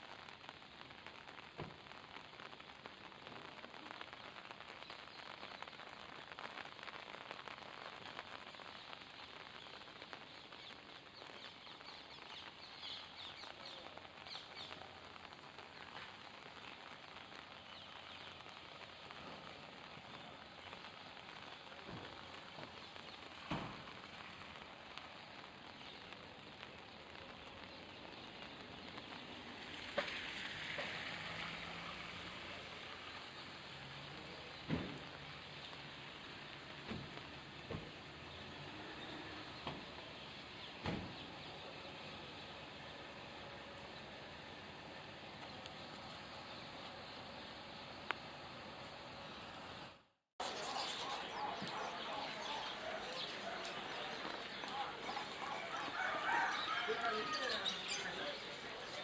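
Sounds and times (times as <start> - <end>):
hissing market background: 0.0 - 59.0
caged birds chirping and fluttering: 50.4 - 59.0.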